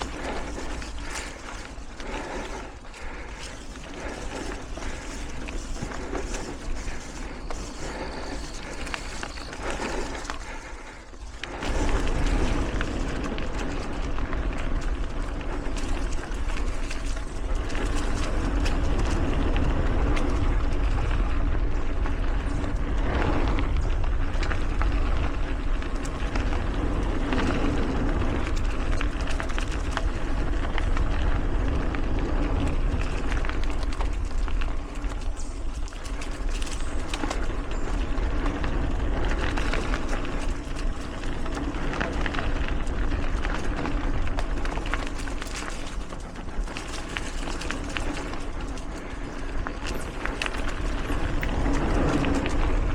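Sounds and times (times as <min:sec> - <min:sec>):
bike rattling: 0:00.0 - 0:52.9
bike tyres rolling on dirt: 0:00.0 - 0:52.9
wind rumbling on microphone: 0:00.0 - 0:52.9.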